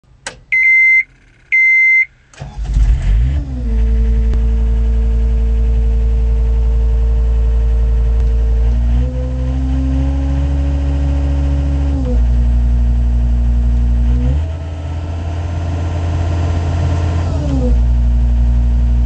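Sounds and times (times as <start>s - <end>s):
short electronic beeps: 0.5s - 2.1s
diesel engine cranking and idling: 1.5s - 19.0s.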